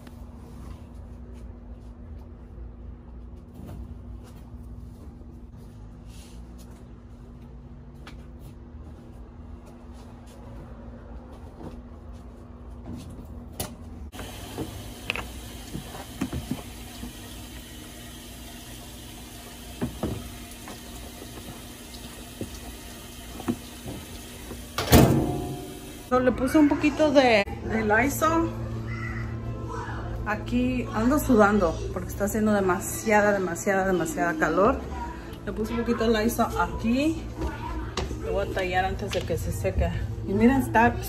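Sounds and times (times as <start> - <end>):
washing machine filling with water: 14.1 - 26.2.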